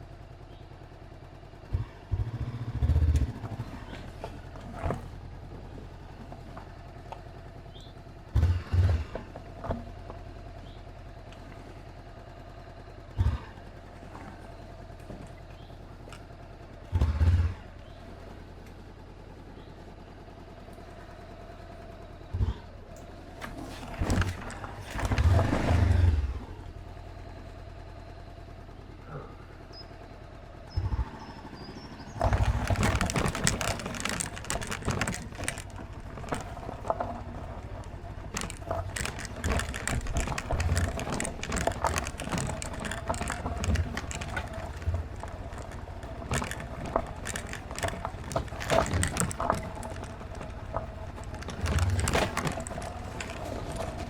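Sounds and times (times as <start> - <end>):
motorcycle engine running: 0.0 - 54.0
dense crackling: 32.1 - 54.0.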